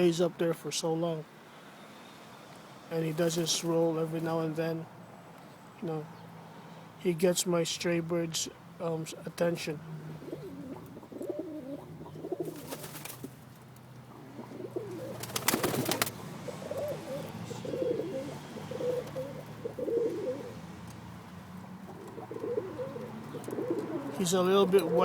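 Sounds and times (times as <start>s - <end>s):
pigeons cooing: 9.8s - 13.4s, 14.0s - 25.0s.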